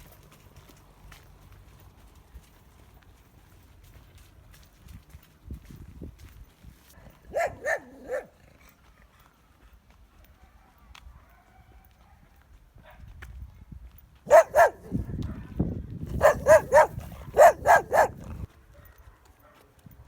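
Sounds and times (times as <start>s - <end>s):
dog barking: 7.0s - 8.4s, 10.4s - 13.0s, 14.3s - 19.7s.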